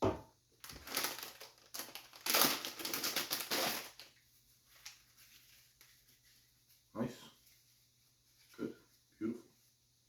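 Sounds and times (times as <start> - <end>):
packaging rustling: 0.6 - 5.9.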